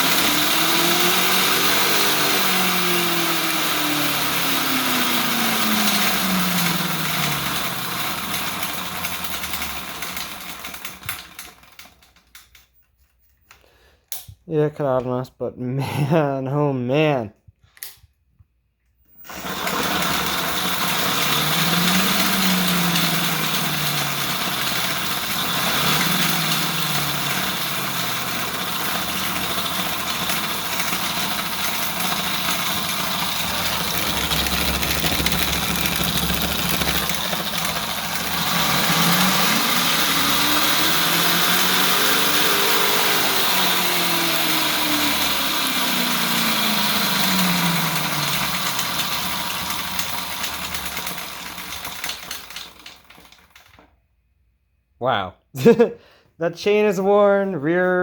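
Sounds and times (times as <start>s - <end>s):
electric motor whine: 0.0s - 8.2s, 19.3s - 50.3s
chain drive mechanical rattle: 19.3s - 44.6s, 47.0s - 53.8s.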